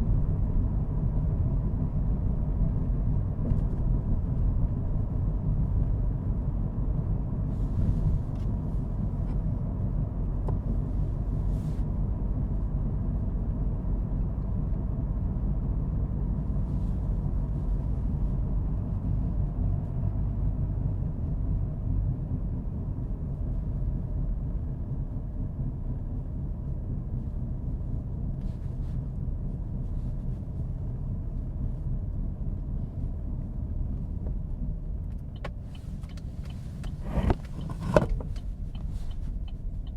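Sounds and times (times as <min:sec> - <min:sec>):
car engine and road noise: 0:00.0 - 0:39.9
faint ticks: 0:35.1 - 0:39.9.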